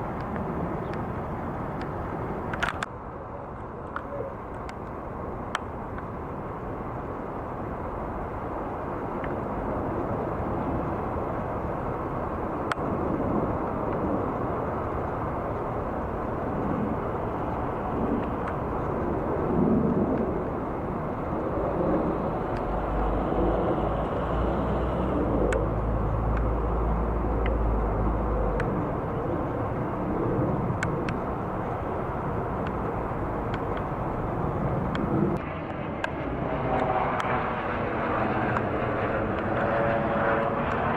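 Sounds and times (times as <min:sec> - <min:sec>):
jet engine rumble: 0:00.0 - 0:40.9
faint clicks: 0:00.1 - 0:02.9, 0:25.4 - 0:26.6, 0:27.4 - 0:29.9, 0:32.6 - 0:34.0, 0:34.8 - 0:35.4.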